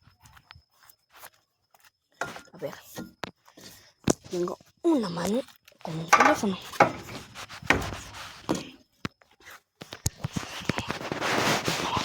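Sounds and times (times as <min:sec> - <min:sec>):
footsteps: 0:06.0 - 0:08.8
phone rustling: 0:06.0 - 0:08.8
chairs knocking: 0:06.1 - 0:08.6.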